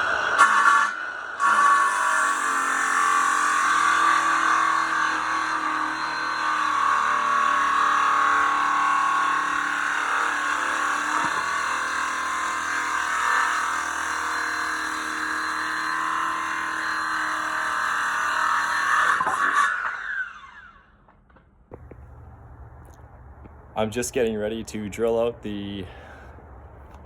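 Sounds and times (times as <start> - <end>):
circular saw cutting wood: 0.0 - 21.0.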